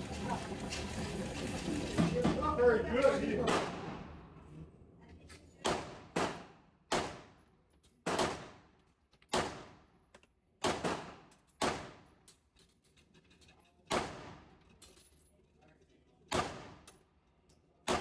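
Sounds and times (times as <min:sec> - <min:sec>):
pistol shots with echo: 0:05.7 - 0:07.3, 0:08.1 - 0:08.6, 0:10.6 - 0:11.9, 0:16.3 - 0:16.8.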